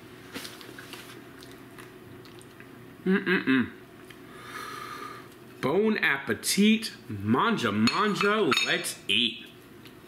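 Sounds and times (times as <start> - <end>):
person chewing: 0.4 - 2.8
short vocal sound: 3.0 - 3.8.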